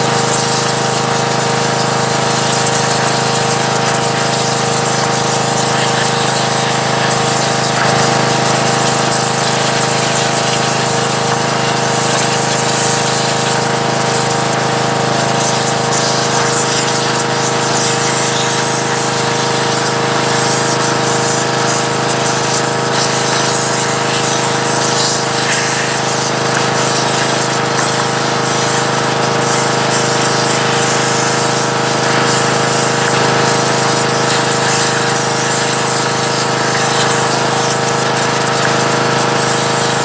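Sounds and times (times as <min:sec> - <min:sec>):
pressure washer pump droning: 0:00.0 - 0:40.0
hiss of water spraying: 0:00.1 - 0:40.0.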